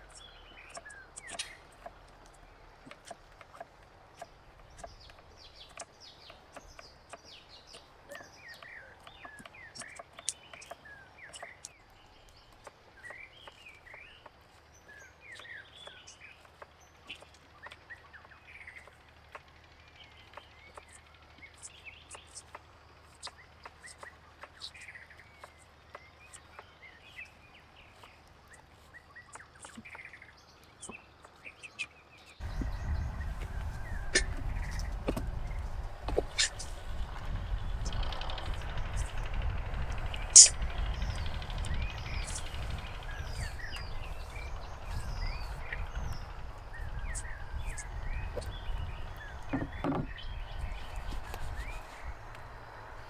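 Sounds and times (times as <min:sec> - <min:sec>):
low steady hum: 0:00.0 - 0:53.0
small birds chirping: 0:00.0 - 0:53.0
steady low rumble: 0:32.4 - 0:53.0.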